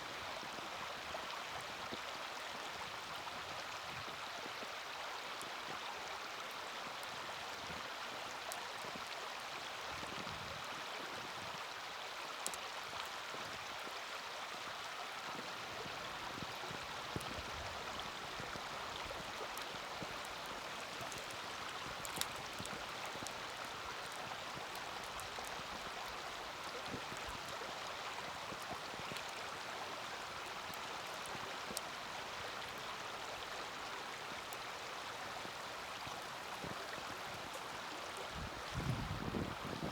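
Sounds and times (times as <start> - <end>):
campfire popping and crackling: 18.3 - 32.1.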